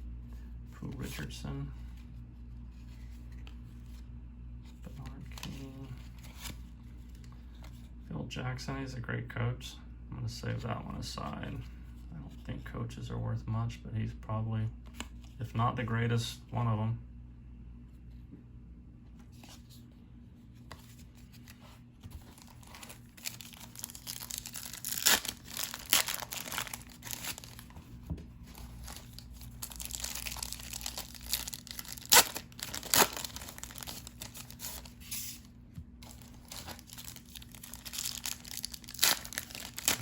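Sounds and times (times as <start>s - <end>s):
paper wrappers crinkling: 21.3s - 35.2s, 36.0s - 40.0s
paper ripping: 22.2s - 27.8s, 28.5s - 35.0s, 36.0s - 40.0s.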